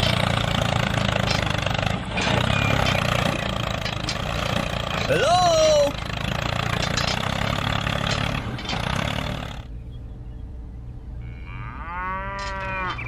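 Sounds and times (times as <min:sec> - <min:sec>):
tractor engine running: 0:00.0 - 0:09.9
drawn-out rising call: 0:04.9 - 0:06.2.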